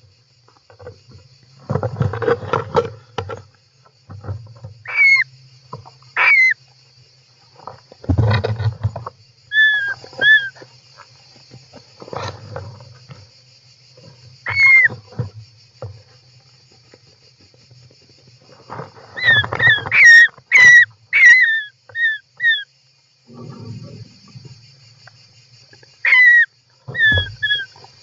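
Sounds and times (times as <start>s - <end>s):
birds calling: 4.8s - 5.3s, 6.1s - 6.6s, 9.5s - 10.7s, 14.4s - 15.0s, 19.0s - 22.7s, 25.7s - 28.0s.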